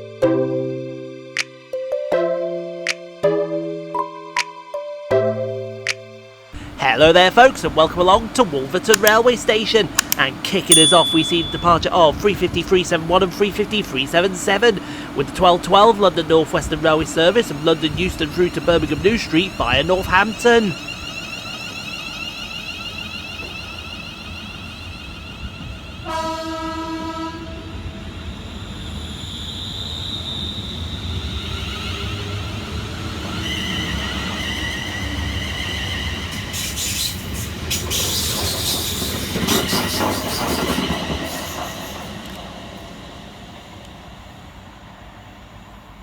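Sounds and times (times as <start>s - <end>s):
traction motors whining: 11.4s - 26.1s
wheels clattering and squealing: 17.2s - 26.0s, 28.2s - 42.4s
train horn: 26.0s - 28.0s.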